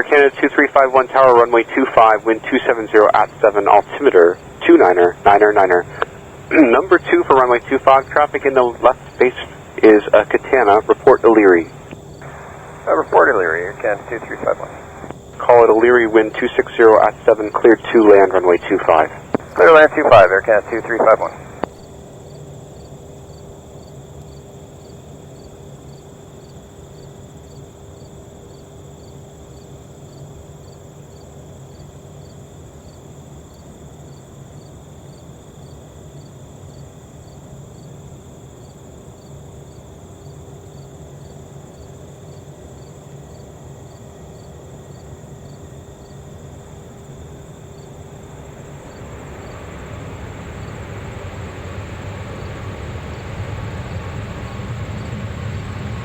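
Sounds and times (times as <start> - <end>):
jet engines on approach: 0.0 - 23.9, 43.7 - 56.0
crickets chirping: 0.0 - 56.0
faint steady hum: 0.0 - 56.0.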